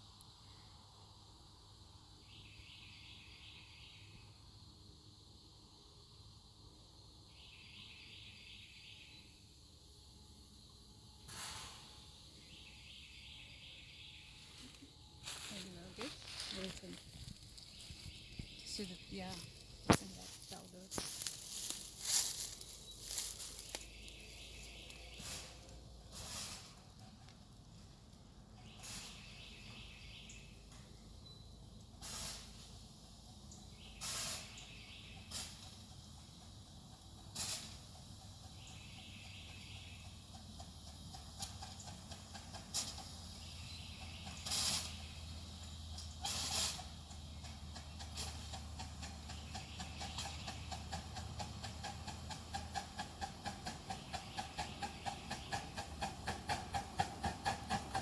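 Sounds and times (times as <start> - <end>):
steam hissing: 11.3 - 11.9, 25.1 - 26.8, 32.0 - 32.9, 34.0 - 36.1, 37.1 - 38.2
steam locomotive exhaust beats: 31.8 - 58.0.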